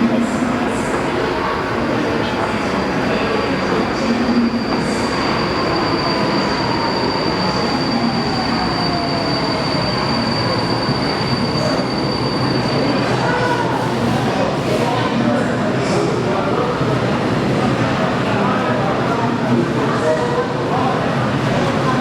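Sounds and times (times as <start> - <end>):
high wheel squeal: 4.1 - 13.8.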